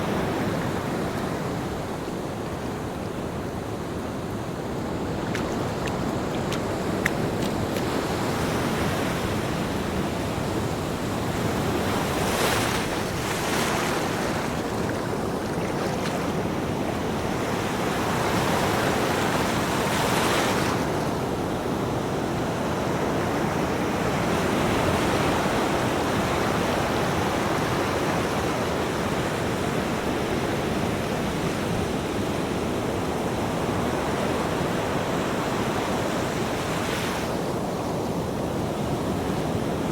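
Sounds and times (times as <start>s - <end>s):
ocean waves breaking: 0.0s - 22.0s.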